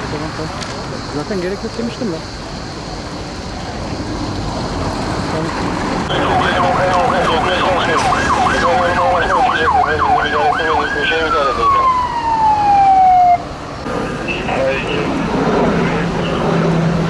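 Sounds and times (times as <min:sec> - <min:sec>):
background rush of noise: 0:00.0 - 0:17.0
emergency siren wailing: 0:05.3 - 0:17.0.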